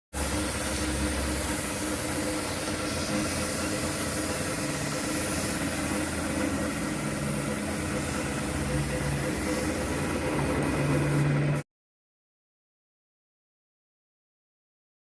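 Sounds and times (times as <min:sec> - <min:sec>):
diesel engine idling: 0:00.2 - 0:11.6.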